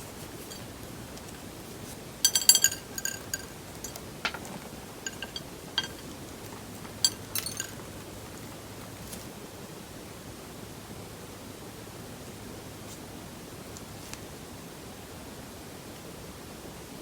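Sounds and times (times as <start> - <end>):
small hard objects clinking: 0.4 - 1.6, 2.2 - 8.6.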